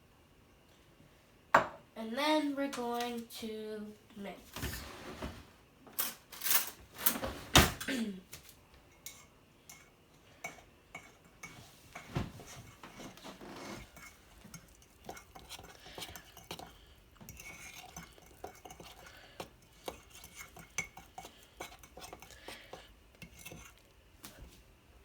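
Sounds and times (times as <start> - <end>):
utensil clinking and scraping in mug: 8.9 - 23.9.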